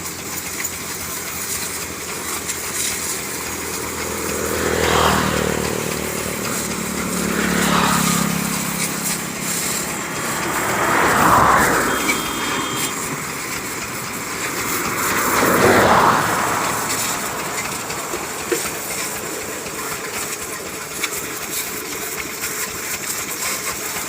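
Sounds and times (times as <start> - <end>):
tractor engine under load: 0.0 - 24.0
tractor rattle: 0.0 - 24.0.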